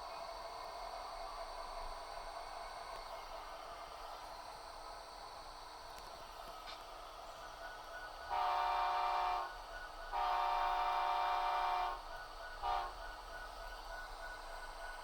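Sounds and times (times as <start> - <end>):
model locomotive horn: 8.2 - 13.2.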